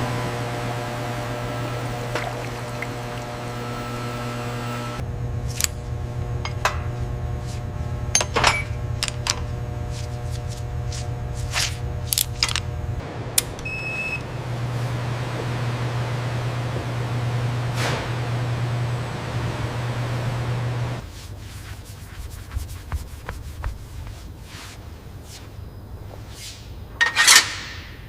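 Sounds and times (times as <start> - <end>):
low machine hum: 0.0 - 21.1.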